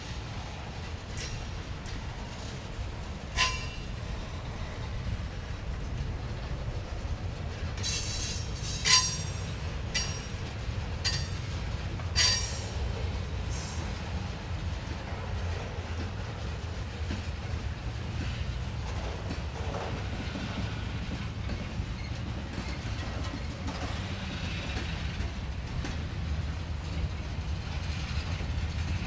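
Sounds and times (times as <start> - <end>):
freight train rumbling past: 0.0 - 29.0
metallic wheel squeals: 7.8 - 10.3, 21.9 - 23.5.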